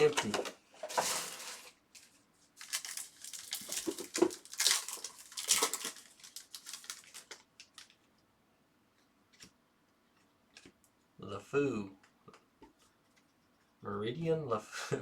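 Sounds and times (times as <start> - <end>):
foil wrapper tearing and crinkling: 0.9 - 8.0.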